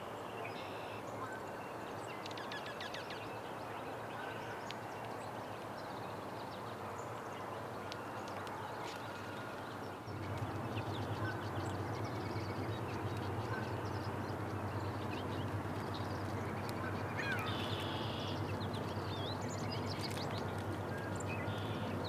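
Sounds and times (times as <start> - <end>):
birds chirping and twittering: 10.1 - 22.0.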